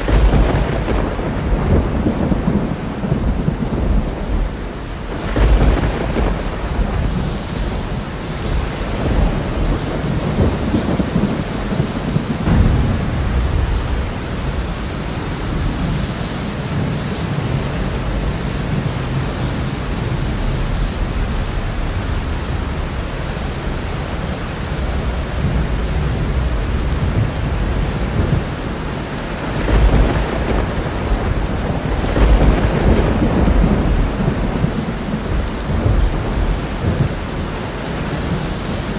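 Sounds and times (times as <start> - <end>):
heavy rain: 0.0 - 38.9
rolling thunder: 0.0 - 38.9.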